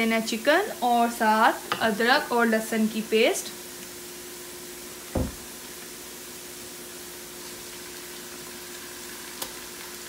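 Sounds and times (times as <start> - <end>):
faint steady hum: 0.0 - 10.0
onions sizzling in oil: 0.0 - 10.0
low thump: 5.1 - 5.5.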